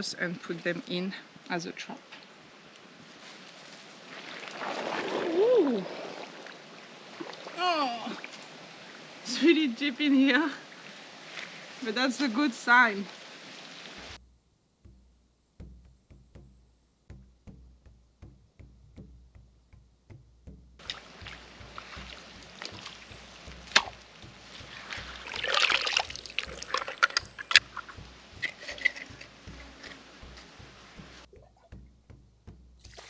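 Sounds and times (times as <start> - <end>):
water sloshing: 3.3 - 14.2, 14.8 - 33.0
water splashing: 3.3 - 14.2, 14.8 - 33.0.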